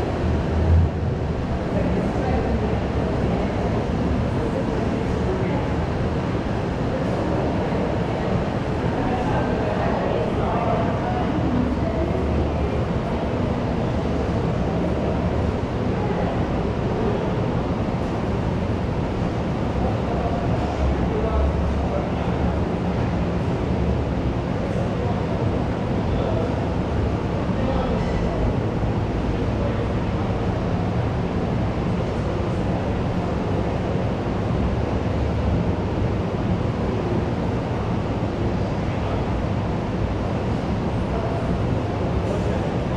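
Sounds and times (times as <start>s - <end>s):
babble of many people talking: 0.0s - 42.9s
crowd hubbub: 0.0s - 42.9s.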